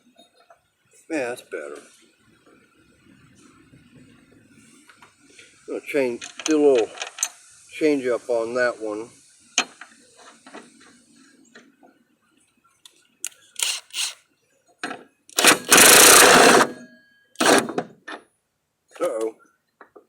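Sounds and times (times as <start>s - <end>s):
power tool running: 13.6s - 14.2s, 15.4s - 16.8s, 17.4s - 17.8s.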